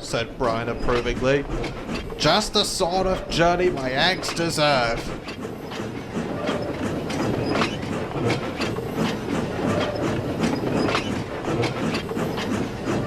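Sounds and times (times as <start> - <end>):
train rumble: 0.0 - 13.0
train wheels clicking over rail joints: 0.0 - 13.0.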